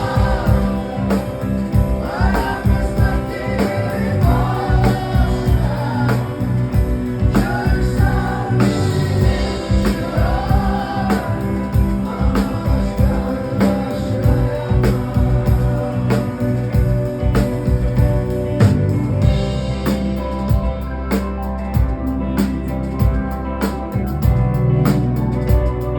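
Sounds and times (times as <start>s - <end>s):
wordless vocal line: 0.0s - 19.3s
drums beating: 0.0s - 25.9s
rock band playing: 0.0s - 25.9s.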